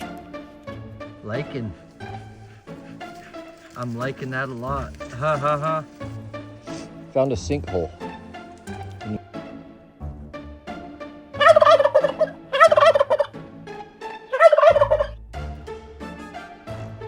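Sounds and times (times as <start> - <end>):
soft background music: 0.0 - 17.0
warbling animal calls: 1.7 - 6.8, 11.4 - 13.4, 14.3 - 15.2.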